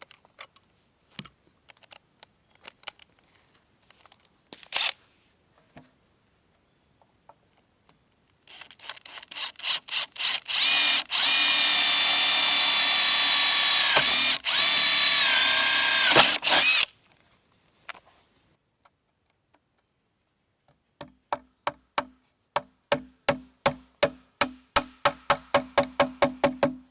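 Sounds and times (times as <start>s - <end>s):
electric drill boring into bamboo: 8.5s - 16.9s.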